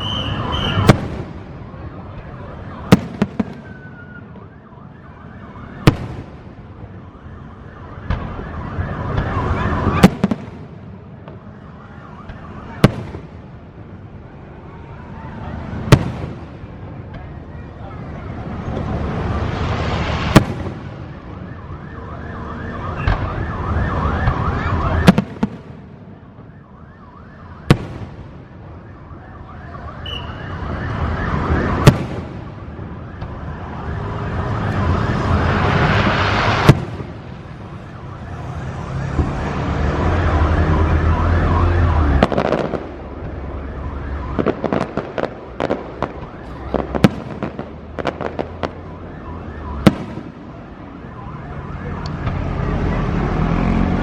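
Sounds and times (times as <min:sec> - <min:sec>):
firework whistling hiss: 0:00.0 - 0:01.0, 0:19.0 - 0:21.3, 0:34.8 - 0:37.8.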